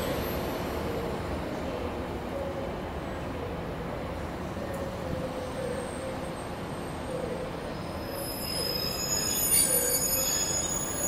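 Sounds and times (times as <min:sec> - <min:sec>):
train rumbling: 0:00.0 - 0:11.0
high-pitched wheel squeal: 0:07.9 - 0:11.0.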